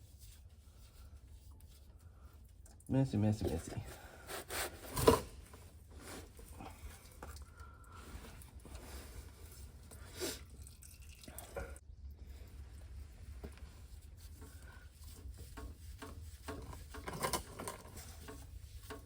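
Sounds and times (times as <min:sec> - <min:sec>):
light scrapes taps and clicks: 0:13.4 - 0:19.0.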